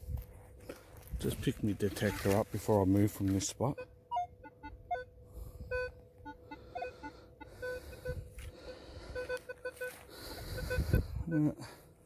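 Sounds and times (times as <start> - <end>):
metal detector beeps: 1.9 - 2.5, 3.6 - 5.1, 5.7 - 8.2, 9.1 - 11.8
faint steady tone: 3.5 - 12.0.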